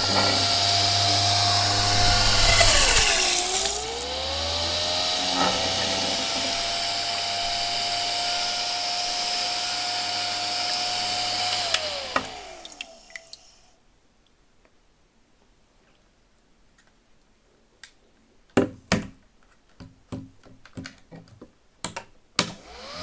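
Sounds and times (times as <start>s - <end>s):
vacuum cleaner motor whining: 0.0s - 13.1s, 22.6s - 23.0s.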